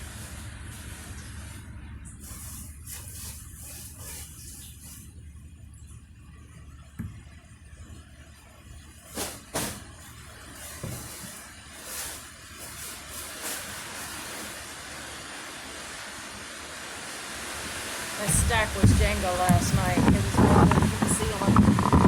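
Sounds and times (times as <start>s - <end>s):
rain rushing: 11.8s - 22.0s
vehicle engine rumbling: 18.2s - 22.0s
sharp knocks: 18.3s - 22.0s.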